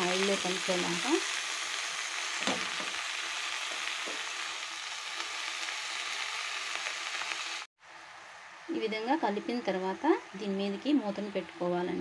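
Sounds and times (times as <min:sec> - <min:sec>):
leaves sizzling in hot oil: 0:00.0 - 0:12.0.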